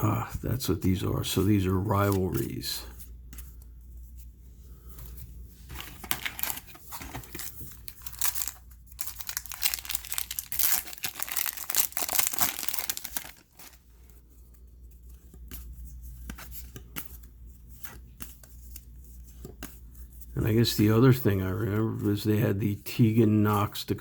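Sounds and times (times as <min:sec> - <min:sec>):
card pack wrapper tearing and crinkling: 0:05.8 - 0:13.8.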